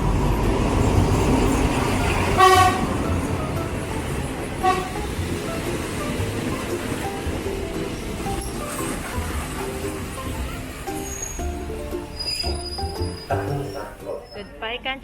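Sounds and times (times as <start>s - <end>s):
train horn toots: 2.0s - 3.5s, 4.5s - 5.2s.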